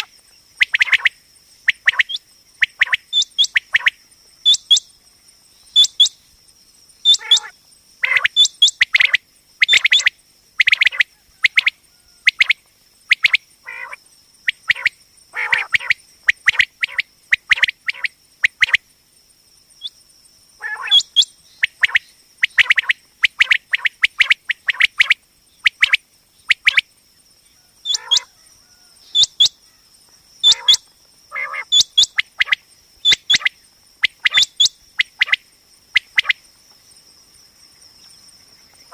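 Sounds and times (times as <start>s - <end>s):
quail calling: 7.0s - 12.5s, 13.2s - 14.0s, 14.6s - 18.7s, 20.6s - 25.1s, 27.6s - 29.6s, 30.4s - 33.5s, 34.1s - 35.4s.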